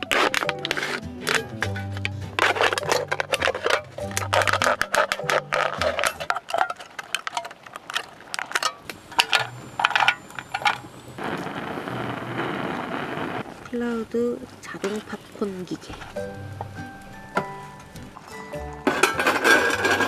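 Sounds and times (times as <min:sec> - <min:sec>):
low background music: 0:00.0 - 0:06.4, 0:15.5 - 0:20.0
tableware clinking: 0:00.2 - 0:10.8, 0:17.3 - 0:20.0
steady hiss: 0:08.2 - 0:20.0.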